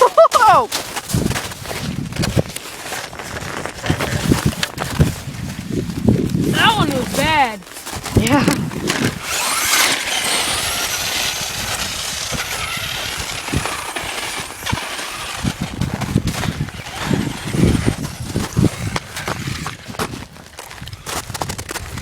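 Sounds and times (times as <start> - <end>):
toy electric motor whining: 6.5 - 7.6, 8.2 - 20.1.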